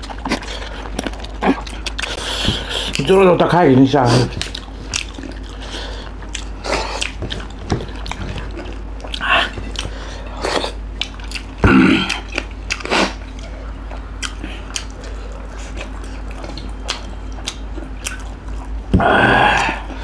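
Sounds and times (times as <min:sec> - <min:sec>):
biting and chewing food: 0:00.0 - 0:03.2, 0:04.2 - 0:20.0
steady low hum: 0:00.0 - 0:20.0.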